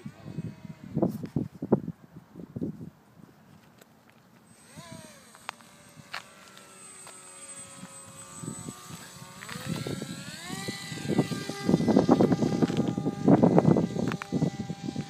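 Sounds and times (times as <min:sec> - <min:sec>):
electric motor and propeller whining: 0:00.0 - 0:01.8, 0:03.5 - 0:15.0
wind buffeting microphone: 0:00.0 - 0:03.5, 0:07.6 - 0:15.0.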